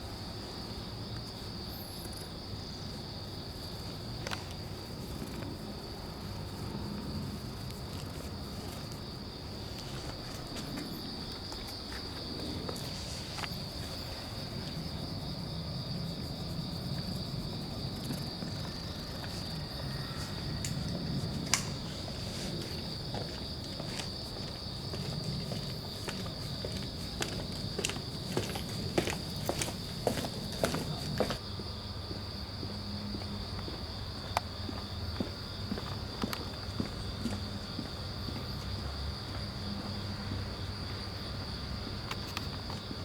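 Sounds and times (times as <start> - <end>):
crickets trilling: 0.0 - 43.0.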